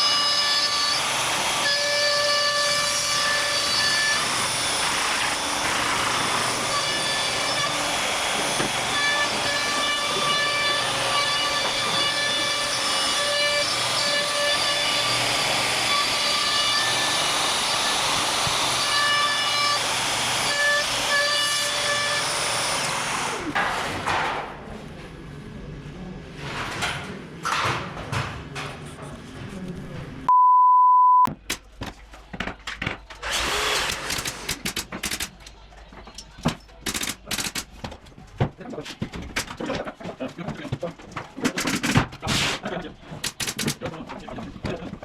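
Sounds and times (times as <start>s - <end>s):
electronic beep: 30.3s - 31.3s.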